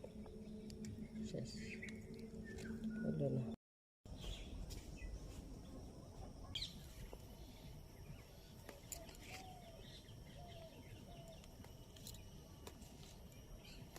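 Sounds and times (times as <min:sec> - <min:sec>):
faint bird chirps: 0:00.3 - 0:03.6.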